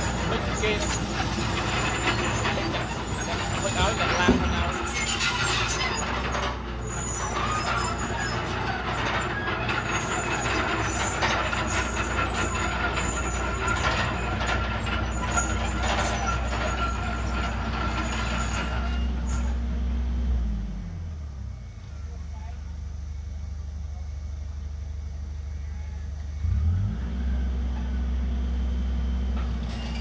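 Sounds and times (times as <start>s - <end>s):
clattering: 0.0s - 19.6s
bulldozer diesel engine running: 0.0s - 30.0s.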